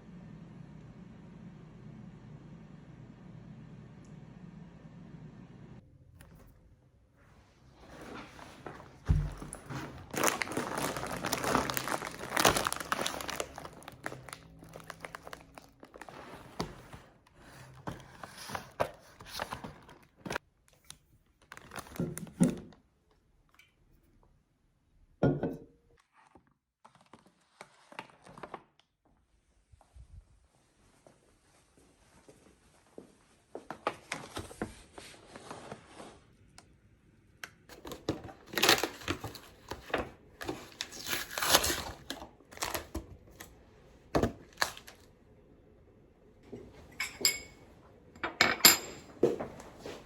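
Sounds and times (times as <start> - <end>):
material crinkling and rustling: 7.6 - 22.6, 37.7 - 43.6.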